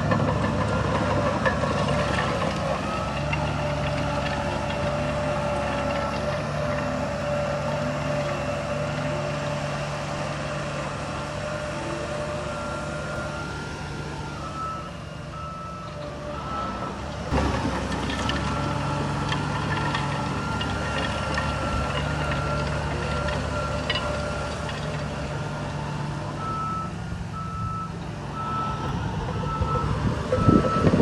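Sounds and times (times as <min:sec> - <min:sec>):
heavy diesel machinery running: 0:00.0 - 0:31.0
reversing alarm beeping: 0:11.4 - 0:17.0, 0:25.8 - 0:31.0.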